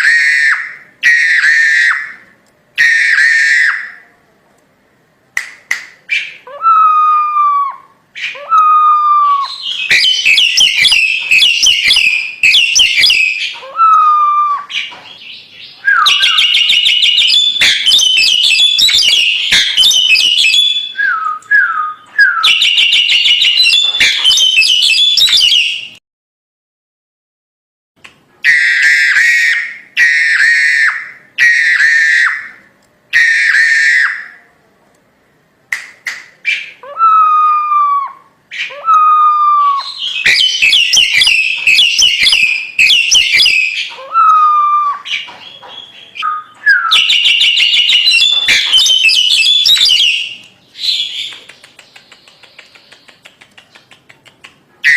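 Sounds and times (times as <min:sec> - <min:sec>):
bird harsh chattering: 0:09.4 - 0:21.0, 0:22.4 - 0:25.8, 0:39.8 - 0:44.4, 0:45.0 - 0:54.9.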